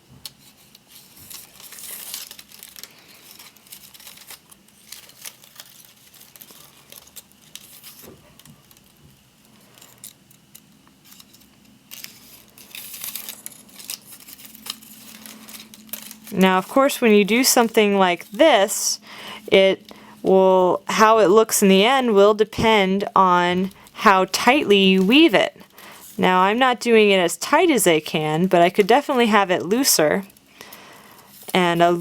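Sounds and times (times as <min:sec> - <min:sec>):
palm fronds rustling: 0:00.4 - 0:18.4.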